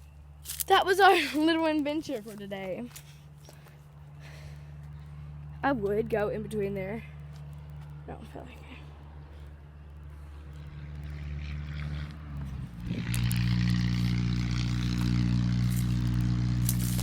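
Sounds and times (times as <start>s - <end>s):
motor engine humming: 3.6s - 17.0s.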